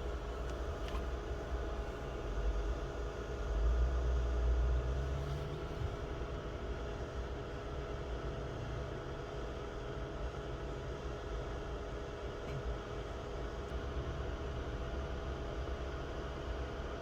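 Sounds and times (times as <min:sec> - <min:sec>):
car engine idling: 0:00.0 - 0:09.1.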